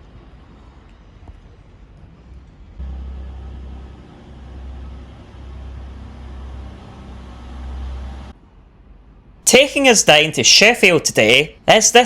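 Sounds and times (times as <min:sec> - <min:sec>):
outdoor ambience: 0:00.0 - 0:12.0
diesel train engine idling: 0:02.8 - 0:08.4.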